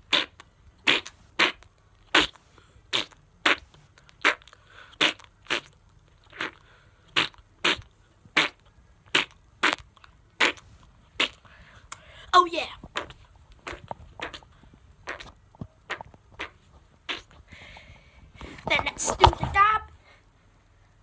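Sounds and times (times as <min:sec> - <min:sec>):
mouth fart noises: 0:00.0 - 0:11.4, 0:12.8 - 0:17.4.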